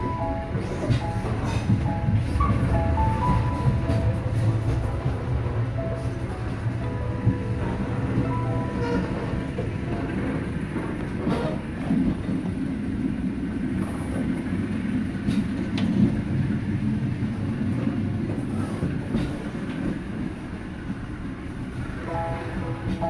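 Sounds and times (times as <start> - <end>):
train wheels clacking: 0.0 - 13.0, 17.3 - 21.0
train rumbling on rails: 0.0 - 23.0.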